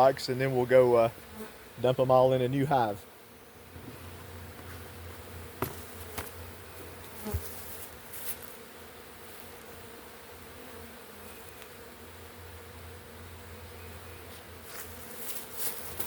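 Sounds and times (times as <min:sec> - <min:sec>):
bee swarm buzzing: 0:00.0 - 0:16.0.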